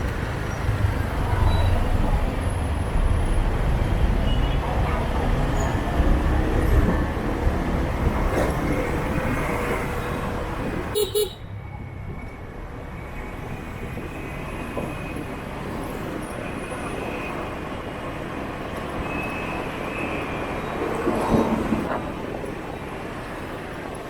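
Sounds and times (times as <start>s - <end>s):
motorbike traffic: 0.0s - 23.9s
vehicle horn beeps: 10.9s - 11.6s.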